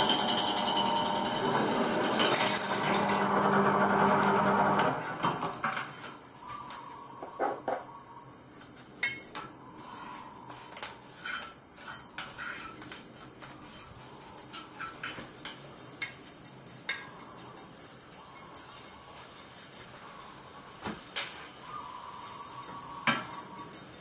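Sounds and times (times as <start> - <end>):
metal tools clinking and scraping: 2.1 - 3.2.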